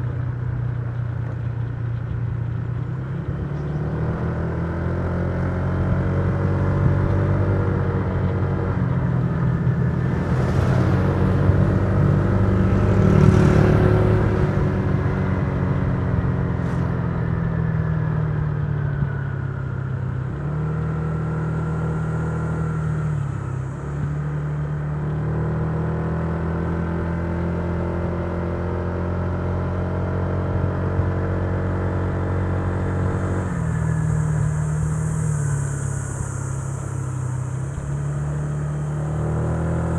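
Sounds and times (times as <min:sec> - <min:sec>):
scooter engine cruising: 0:00.0 - 0:39.9
rush of noise: 0:09.2 - 0:17.9.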